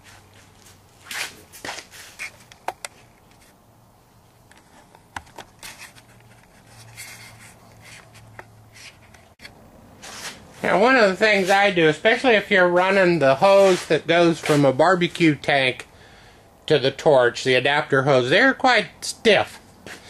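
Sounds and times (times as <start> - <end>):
light knocks and scrapes: 4.5 - 11.7.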